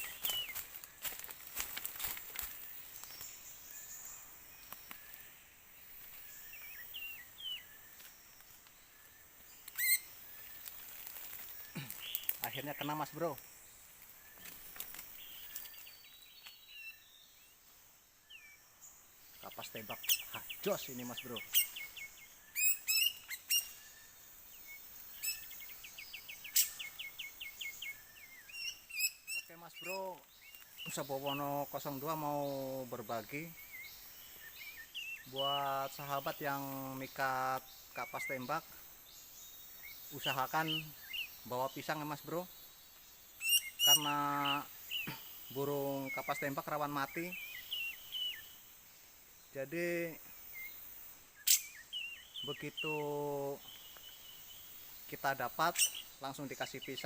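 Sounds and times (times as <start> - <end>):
birds chirping: 0.0 - 57.0
forest ambience: 0.0 - 57.0
loud harsh bird call: 43.4 - 48.4.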